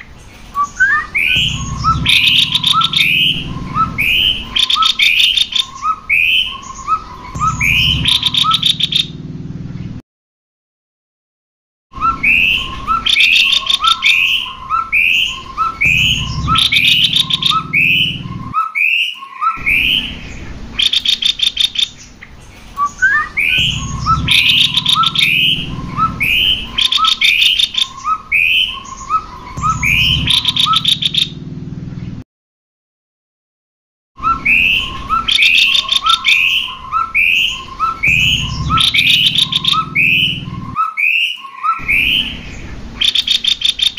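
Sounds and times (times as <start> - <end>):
birds rattling chatters: 0.0 - 9.2, 12.0 - 31.4, 34.3 - 43.9
birds whistling short notes: 34.2 - 43.9.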